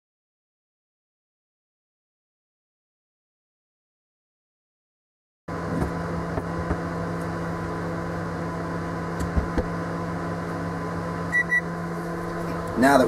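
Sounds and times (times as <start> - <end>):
microwave oven humming: 5.5 - 13.0.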